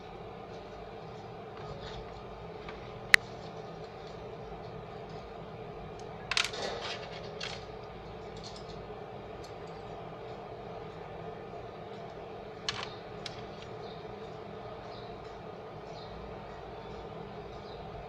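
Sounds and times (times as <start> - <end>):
steady hum: 0.0 - 18.0
clatter of small hard objects: 6.3 - 7.7, 12.7 - 13.7.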